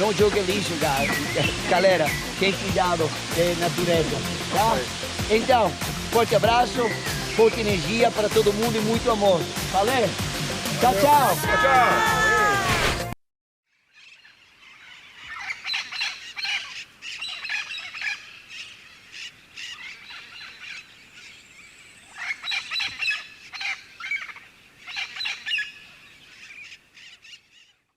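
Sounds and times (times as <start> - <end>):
birds chattering: 0.0 - 3.2, 6.6 - 8.1.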